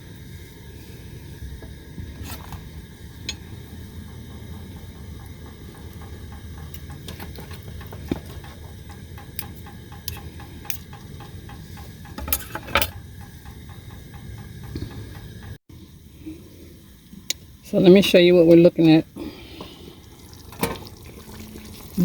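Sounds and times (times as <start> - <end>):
utensil clatter: 2.2 - 15.6
utensil tapping and scraping pan: 6.0 - 15.2.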